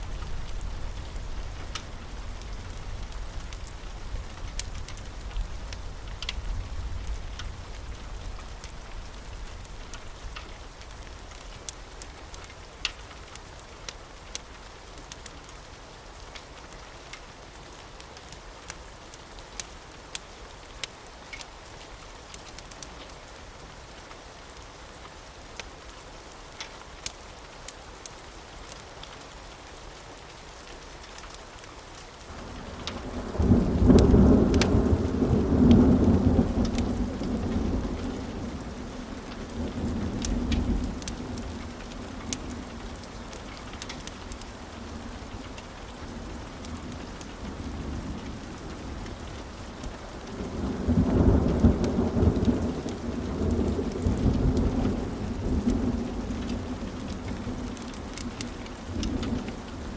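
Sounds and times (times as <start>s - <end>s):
steady rain: 0.0s - 59.9s
thunder rumbling: 32.4s - 59.9s.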